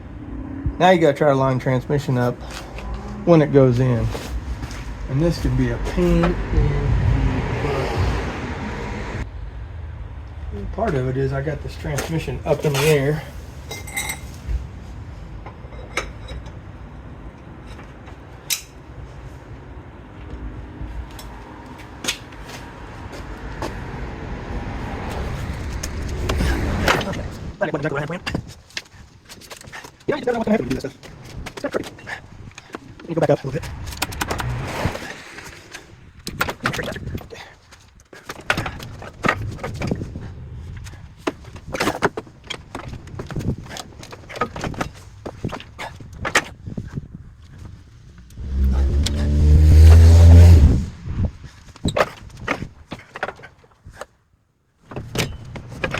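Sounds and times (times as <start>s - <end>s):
low steady rumble: 0.0s - 17.4s, 47.2s - 51.4s.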